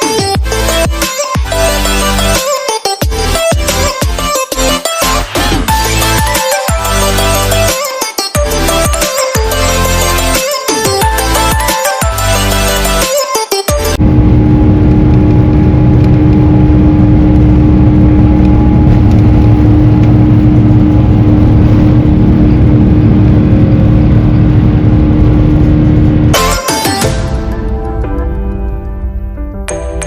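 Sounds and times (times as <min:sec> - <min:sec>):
jet engines rumbling in cabin: 0:14.0 - 0:26.4.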